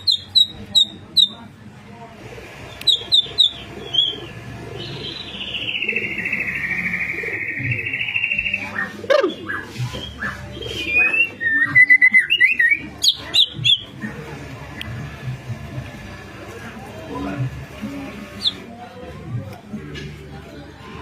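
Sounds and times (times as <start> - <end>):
bird singing: 0.0 - 1.4, 2.8 - 14.0.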